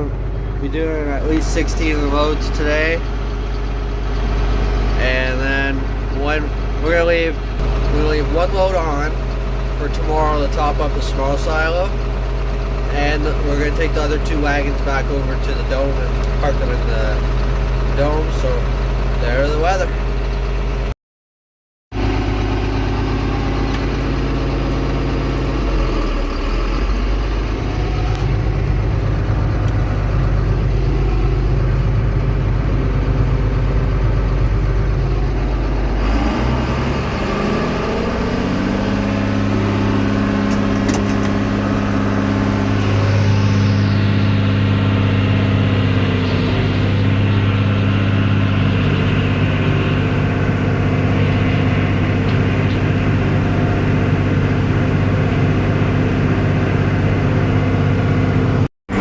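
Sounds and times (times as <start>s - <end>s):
tractor engine running: 0.0s - 20.9s, 22.0s - 59.0s.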